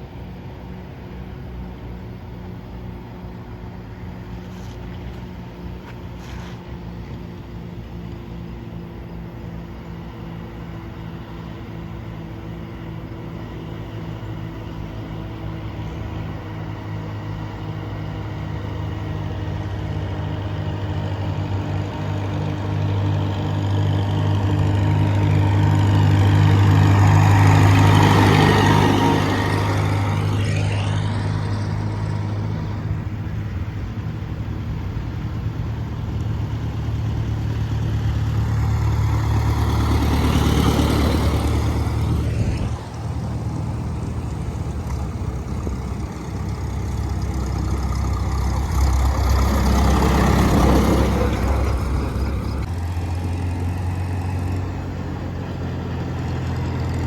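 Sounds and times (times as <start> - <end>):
tractor engine pulsing: 21.0 - 54.8.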